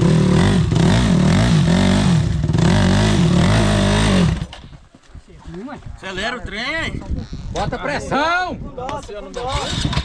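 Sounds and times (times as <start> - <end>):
motorcycle engine revving hard: 0.0 - 4.5, 9.5 - 10.0.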